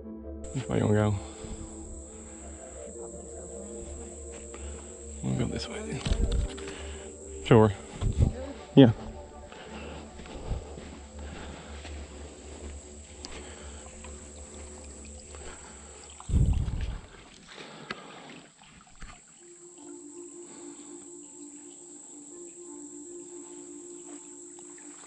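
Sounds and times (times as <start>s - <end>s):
low rumble: 0.0s - 17.2s
high-pitched hum: 0.0s - 17.3s, 19.4s - 25.0s.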